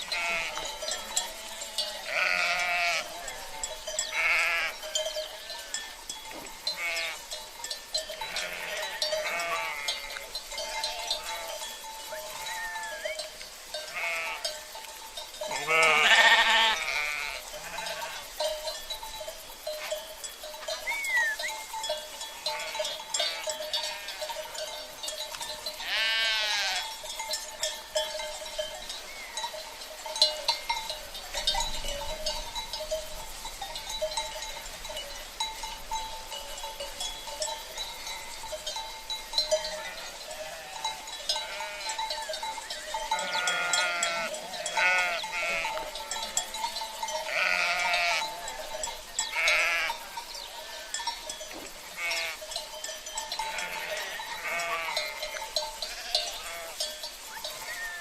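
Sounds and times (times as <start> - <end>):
sheep bleating: 0.0 - 5.8, 6.7 - 7.2, 8.3 - 13.1, 13.8 - 14.5, 15.5 - 18.3, 22.4 - 24.6, 25.8 - 26.9, 39.8 - 42.0, 43.2 - 46.3, 47.2 - 48.6, 49.3 - 51.0, 51.9 - 52.5, 53.4 - 56.9, 57.6 - 58.0
livestock bells clinking: 0.0 - 58.0.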